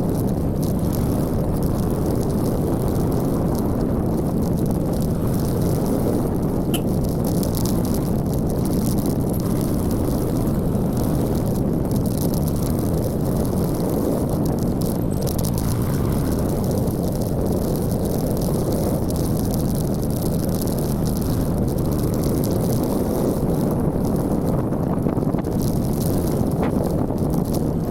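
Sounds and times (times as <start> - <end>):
motorcycle engine drone: 0.0 - 27.9
wind rush: 0.0 - 27.9.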